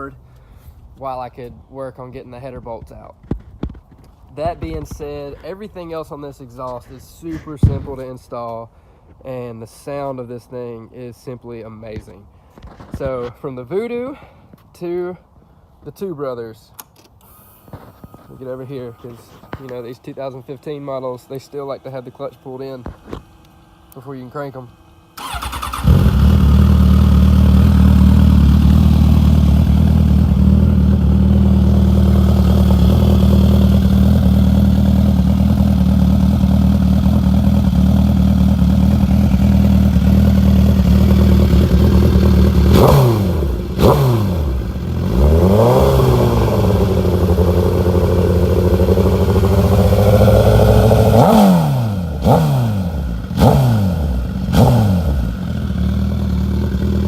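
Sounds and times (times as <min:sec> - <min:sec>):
motorcycle engine starting and idling: 0:16.8 - 0:57.0
motorcycle engine revving: 0:22.6 - 0:57.0.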